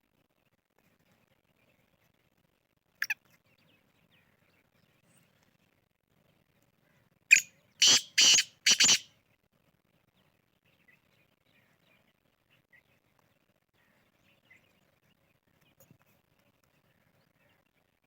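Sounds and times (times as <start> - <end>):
francolin calling harsh notes: 7.3 - 9.1.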